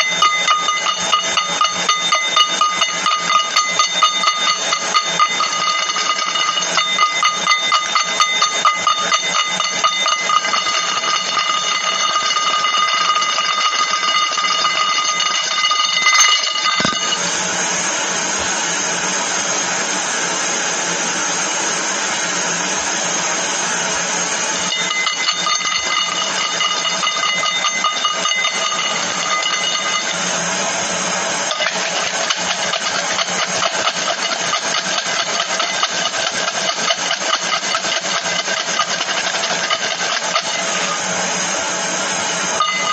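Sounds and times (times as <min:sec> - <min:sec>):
rapid continuous clicking: 0:00.0 - 0:17.4, 0:24.6 - 0:30.4, 0:31.5 - 0:41.0
faint high ringing tone: 0:00.0 - 0:17.5, 0:24.6 - 0:34.4, 0:42.4 - 0:42.9.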